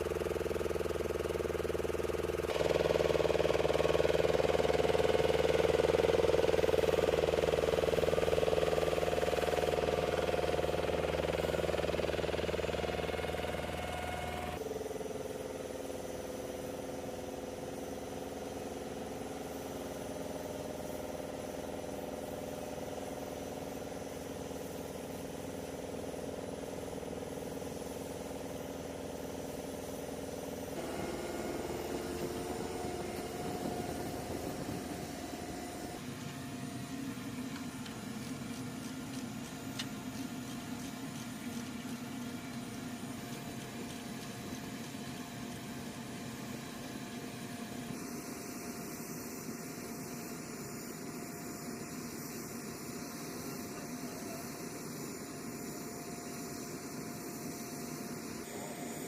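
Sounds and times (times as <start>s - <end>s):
engine hum: 0.0s - 14.6s, 30.7s - 47.0s.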